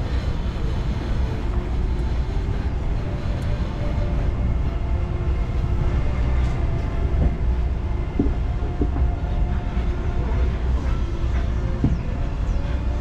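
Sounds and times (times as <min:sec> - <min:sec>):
tram engine and cars rumbling: 0:00.0 - 0:13.0
light knocks and rattles: 0:08.1 - 0:09.2.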